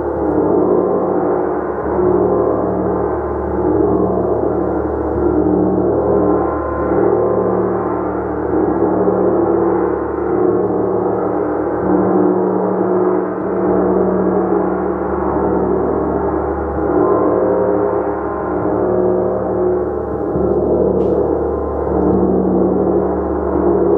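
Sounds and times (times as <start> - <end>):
gong tones: 0.0 - 23.9.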